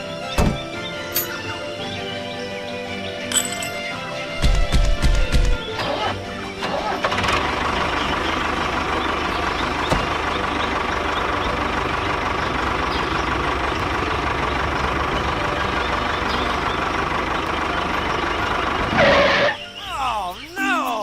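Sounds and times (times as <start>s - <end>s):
small engine idling with whine: 5.5s - 19.7s.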